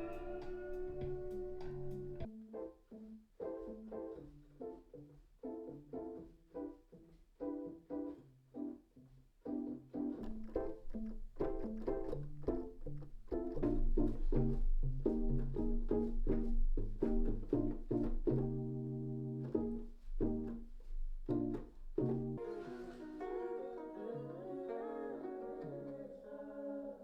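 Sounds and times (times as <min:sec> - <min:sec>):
held chord: 0:00.0 - 0:02.3
plucked string notes: 0:00.0 - 0:02.5, 0:10.1 - 0:26.6.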